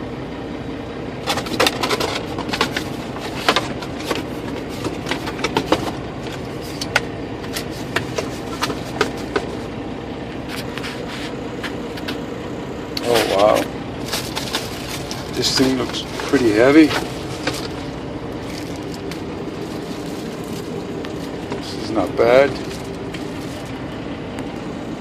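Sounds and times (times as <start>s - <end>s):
low hum: 0.0s - 25.0s
cardboard box being opened: 1.3s - 9.6s, 13.1s - 21.8s
packaging crinkling: 14.0s - 21.9s, 22.5s - 23.8s.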